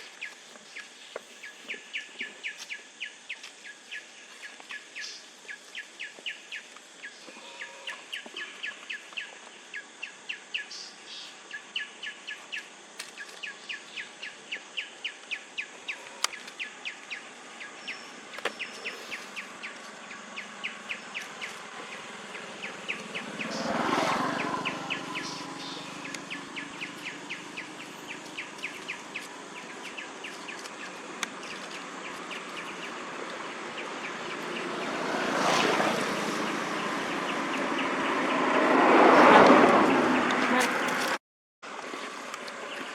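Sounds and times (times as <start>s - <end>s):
bird chirping: 0.0s - 38.5s
vehicle passing: 19.9s - 29.8s, 32.2s - 41.2s.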